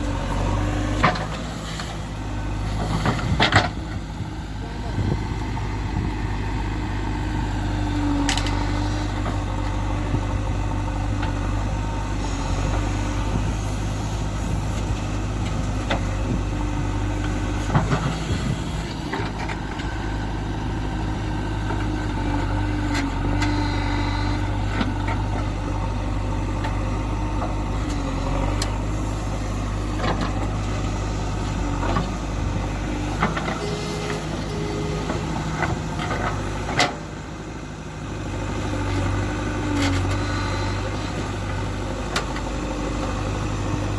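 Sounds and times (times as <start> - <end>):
diesel engine running: 0.0 - 43.9
wavering whine: 33.6 - 36.3.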